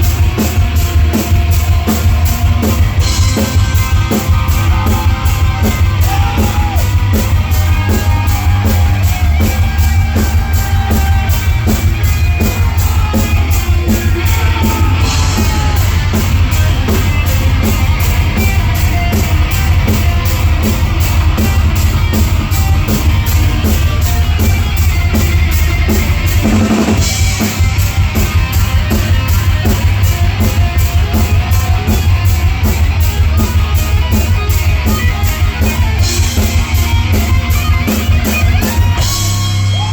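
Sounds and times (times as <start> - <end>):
distorted electric guitars: 0.0 - 39.9
fast heavy drumming: 0.0 - 39.9
lead guitar bending lines: 0.0 - 39.9.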